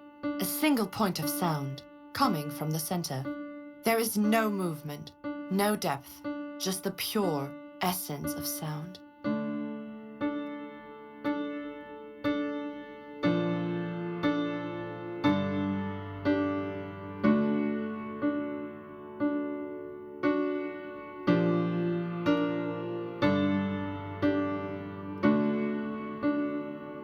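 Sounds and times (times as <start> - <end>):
slow solo piano: 0.0 - 0.5, 3.2 - 4.3, 6.2 - 6.8, 7.5 - 27.0.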